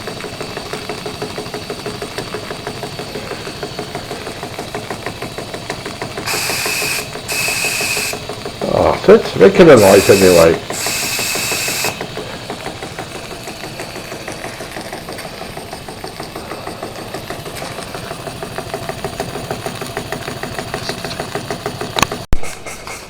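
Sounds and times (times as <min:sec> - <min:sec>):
model steam engines chuffing: 0:00.0 - 0:23.0
steam hiss: 0:06.3 - 0:12.6.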